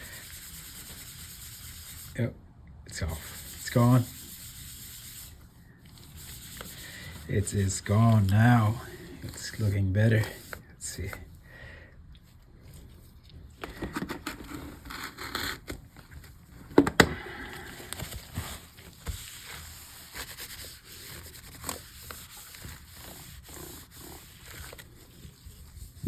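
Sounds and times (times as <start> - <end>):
scraping sticker residue: 3.0 - 11.2, 17.7 - 26.0.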